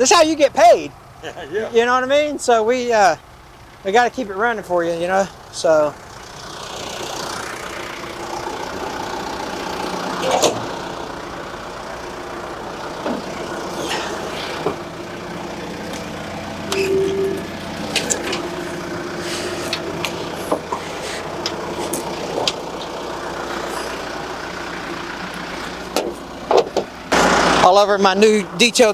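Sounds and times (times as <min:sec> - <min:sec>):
backhoe diesel engine running: 0:00.0 - 0:28.9
metal clanks and knocks: 0:13.0 - 0:15.2, 0:15.8 - 0:24.0, 0:25.2 - 0:27.0.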